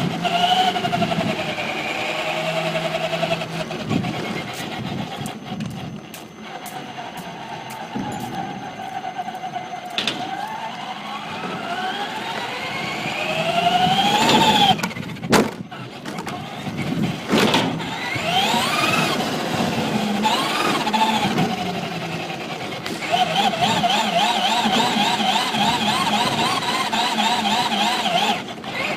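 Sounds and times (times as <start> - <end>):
electric motor whining: 0.0 - 28.9.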